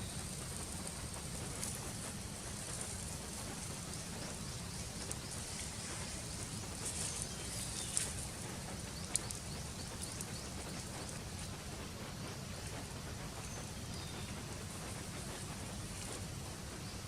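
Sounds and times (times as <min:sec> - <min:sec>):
faint high chirps and ticks: 0:00.0 - 0:17.0.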